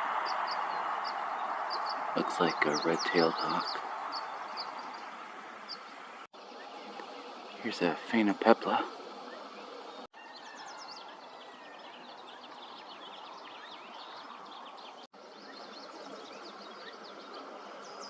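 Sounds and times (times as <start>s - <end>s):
steady background hiss: 0.0s - 10.1s
small birds chirping: 0.0s - 18.0s.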